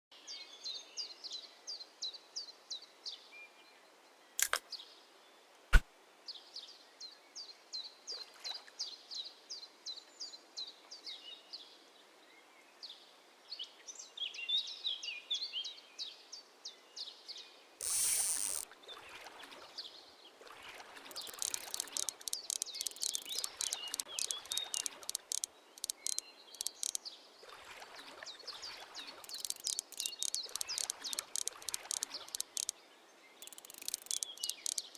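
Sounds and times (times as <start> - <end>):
sharp clicks: 17.8 - 18.6, 21.1 - 27.0, 29.3 - 32.7, 33.4 - 34.9
small birds chirping: 21.1 - 27.2, 28.3 - 34.9.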